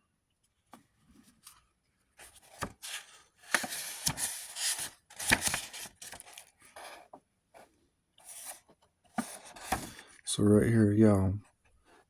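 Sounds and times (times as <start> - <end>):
cards and paper rustling: 2.2 - 7.1, 8.2 - 10.1.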